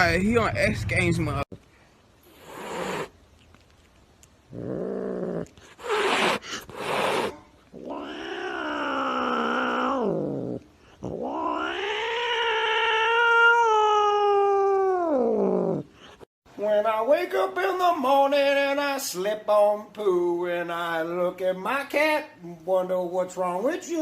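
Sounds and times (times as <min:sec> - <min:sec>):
cat hissing: 0:02.2 - 0:03.2, 0:04.6 - 0:16.3
cat yowling: 0:05.8 - 0:15.8.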